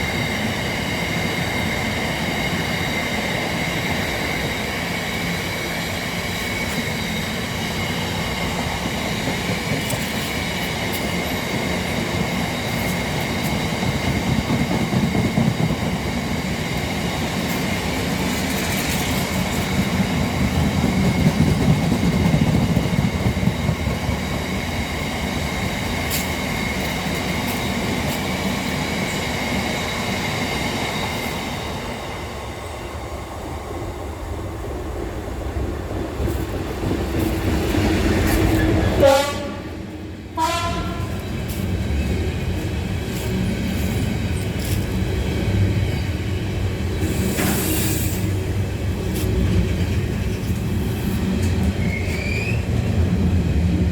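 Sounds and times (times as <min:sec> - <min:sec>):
train running past: 0:00.0 - 0:53.9
train horn short notes: 0:39.0 - 0:39.8, 0:40.4 - 0:41.2.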